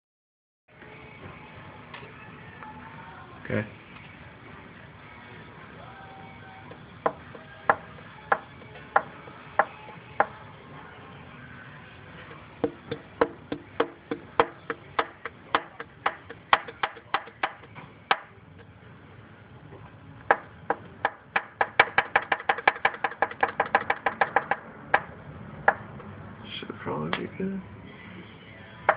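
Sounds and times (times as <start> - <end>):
engine metallic knocking: 12.6 - 18.2, 21.1 - 25.8.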